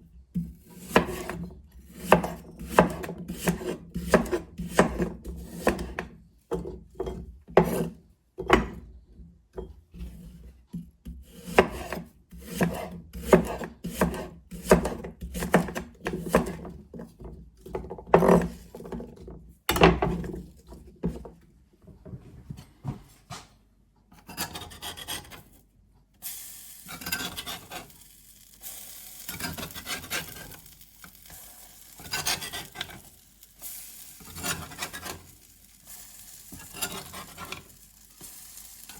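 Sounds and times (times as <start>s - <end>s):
stirring scrapes in a pan: 0.5s - 6.0s, 7.0s - 8.1s, 9.9s - 17.2s, 24.2s - 25.6s, 26.4s - 38.9s
food sizzling in a pan: 26.2s - 38.9s
scraping strokes on wood: 26.9s - 28.0s, 29.2s - 30.8s, 31.8s - 33.2s, 34.2s - 38.4s.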